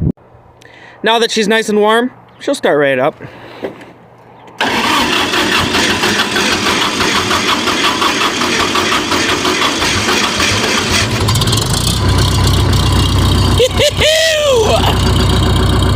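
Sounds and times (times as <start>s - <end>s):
diesel tractor engine chugging: 4.6s - 15.9s.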